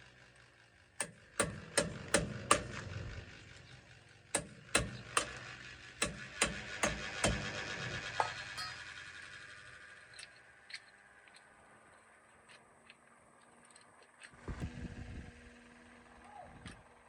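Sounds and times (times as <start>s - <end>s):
hammer blows with ringing: 8.2s - 9.2s.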